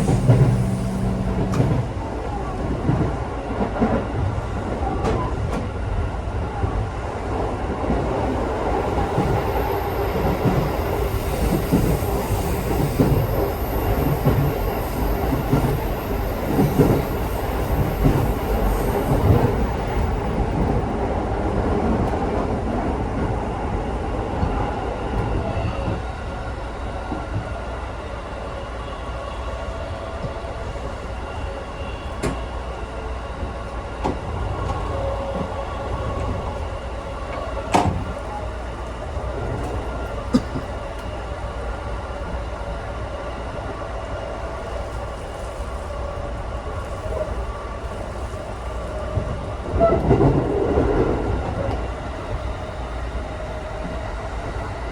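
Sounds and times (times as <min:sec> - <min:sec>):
thin high whine: 0:00.0 - 0:02.0
train wheels rumbling on rails: 0:00.0 - 0:54.9.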